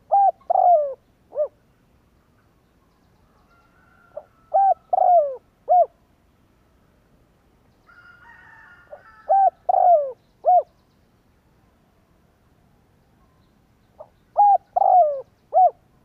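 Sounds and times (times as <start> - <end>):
dove cooing: 0.0 - 1.6, 4.1 - 6.0, 8.9 - 10.7, 14.0 - 15.9.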